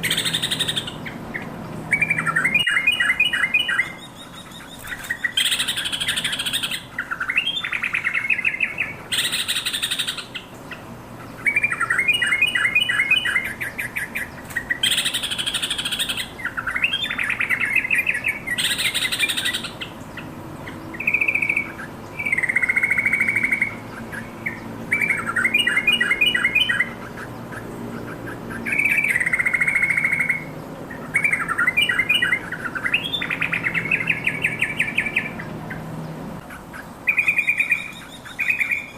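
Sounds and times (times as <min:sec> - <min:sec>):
bulbul singing: 0:00.0 - 0:38.9
harsh scratchy bird calls: 0:00.0 - 0:38.9.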